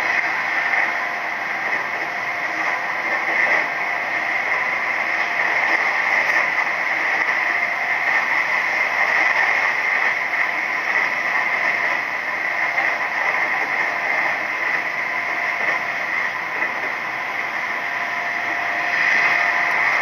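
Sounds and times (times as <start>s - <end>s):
electric train running: 0.0s - 20.0s.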